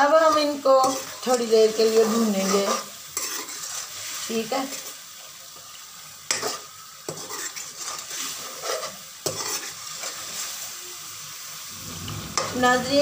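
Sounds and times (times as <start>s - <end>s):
metal ladle scraping a pan: 0.0s - 5.0s, 6.3s - 10.6s, 11.7s - 13.0s
food sizzling in a pan: 0.0s - 13.0s.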